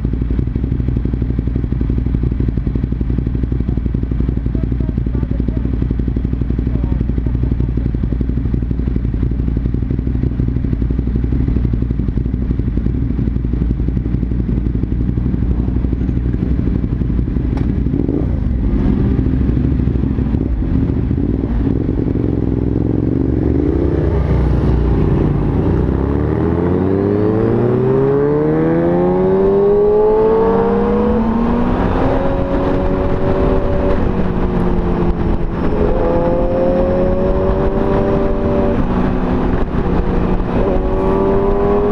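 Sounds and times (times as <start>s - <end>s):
motorcycle engine: 0.0s - 41.9s
wind noise: 16.3s - 41.9s.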